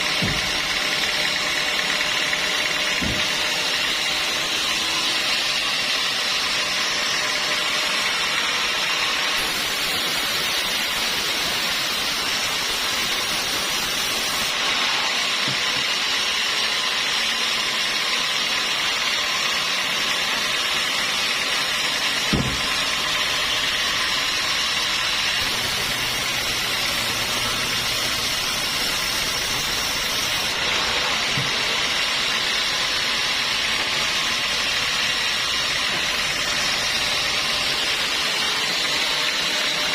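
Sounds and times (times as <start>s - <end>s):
sawmill saw running: 0.0s - 39.9s
sharp knock: 22.3s - 22.7s.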